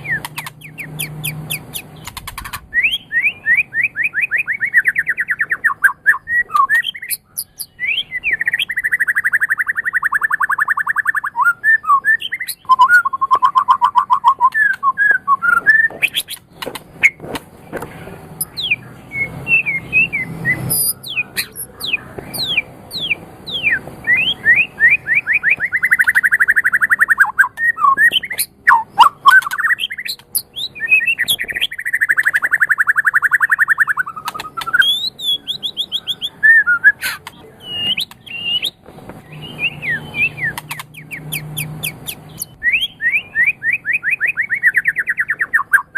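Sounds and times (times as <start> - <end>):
songbird singing trills and whistles: 0.0 - 17.2, 18.4 - 45.9.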